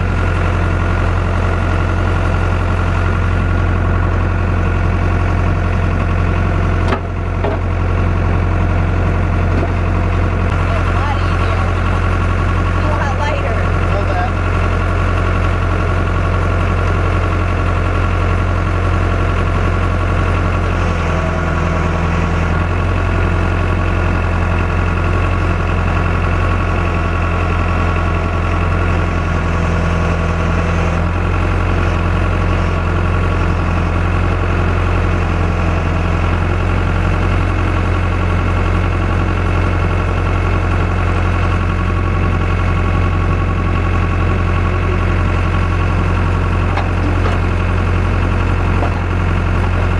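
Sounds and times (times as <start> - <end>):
tractor engine running: 0.0 - 49.9.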